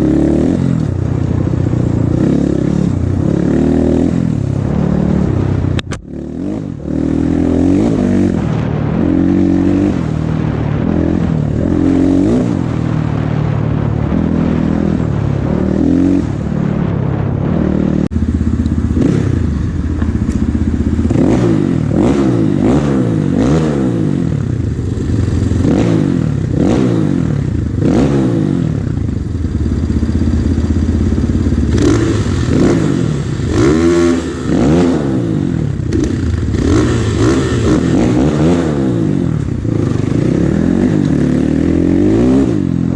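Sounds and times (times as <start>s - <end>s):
motorcycle engine revving: 0.0s - 42.9s
clatter: 18.0s - 22.0s.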